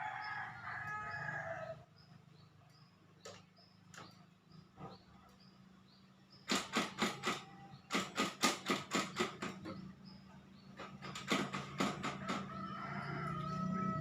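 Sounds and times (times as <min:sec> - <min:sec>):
sharp knocks: 0:06.4 - 0:09.8, 0:10.8 - 0:12.6.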